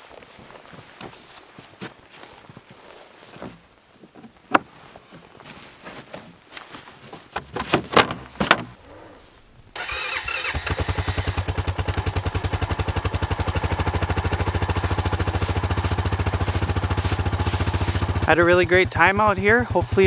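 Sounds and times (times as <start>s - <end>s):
atv engine starting and idling: 9.7s - 20.0s.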